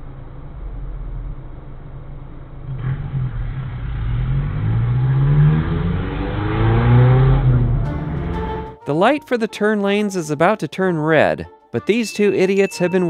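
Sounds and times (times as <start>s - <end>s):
car engine accelerating: 0.0s - 8.8s.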